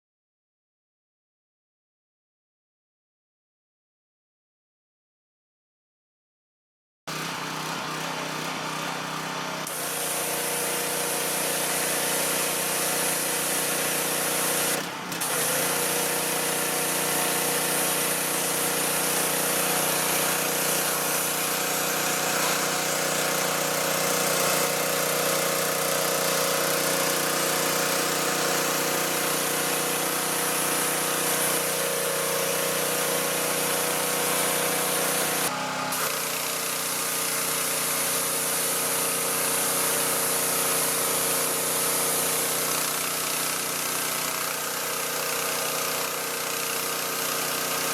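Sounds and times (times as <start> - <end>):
pressure washer engine running: 7.1 - 47.9
hiss of spraying water: 9.7 - 47.9.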